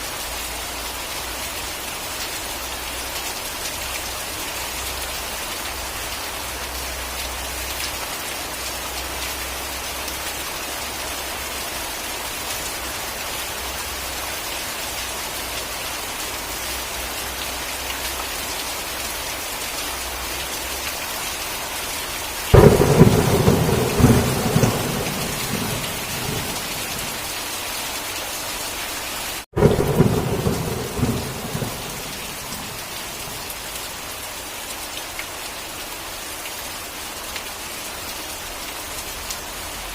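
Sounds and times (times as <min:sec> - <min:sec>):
heavy rain: 0:00.0 - 0:39.9
thunderclaps rumbling: 0:22.5 - 0:27.3, 0:29.5 - 0:33.5.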